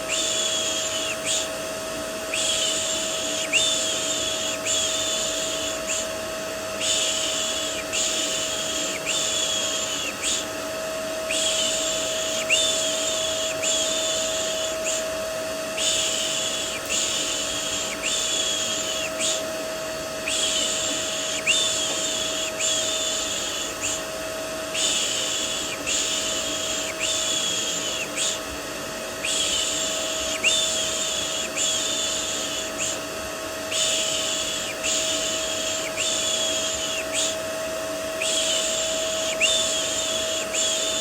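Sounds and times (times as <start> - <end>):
vacuum cleaner drone: 0.0 - 41.0.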